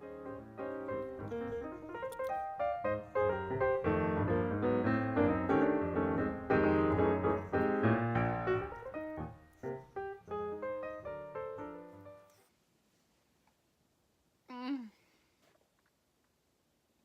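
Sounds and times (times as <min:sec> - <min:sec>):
piano music: 0:00.0 - 0:12.4.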